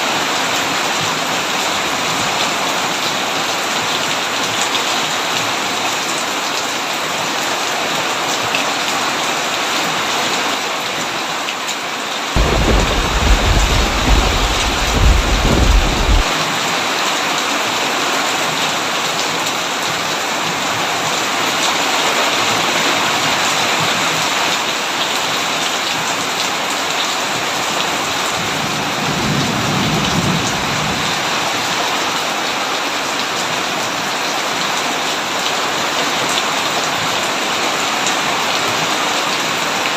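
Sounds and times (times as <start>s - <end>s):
heavy rain on a tin roof: 0.0s - 39.9s
thunder rumbling: 12.4s - 16.3s.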